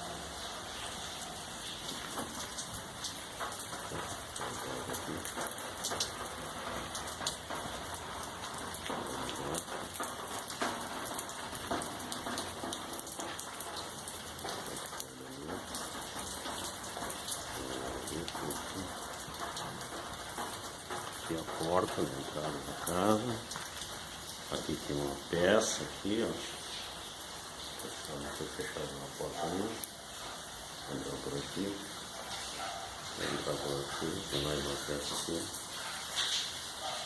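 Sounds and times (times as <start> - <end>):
raindrops clicking on hard surfaces: 0.0 - 37.0
steady rain falling: 0.0 - 37.0.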